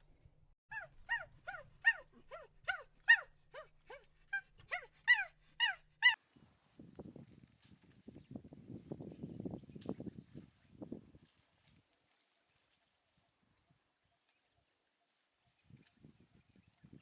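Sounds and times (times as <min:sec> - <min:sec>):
dog yelping whimpers: 0:00.7 - 0:06.2.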